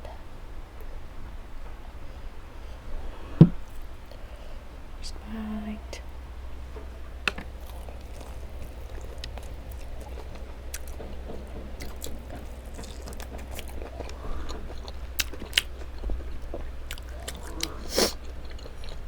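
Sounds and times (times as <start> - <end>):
steady low hum: 0.0 - 19.0
chewing and crunching chicken wings: 7.5 - 19.0.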